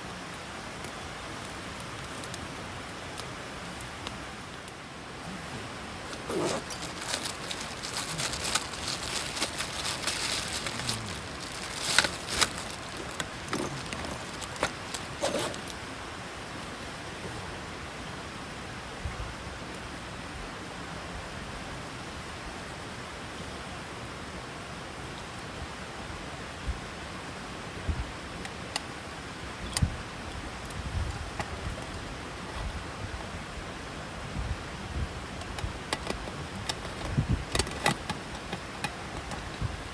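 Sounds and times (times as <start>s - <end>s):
steady outdoor hiss: 0.0s - 39.9s
rustling handling noises: 5.8s - 15.9s, 35.3s - 39.9s.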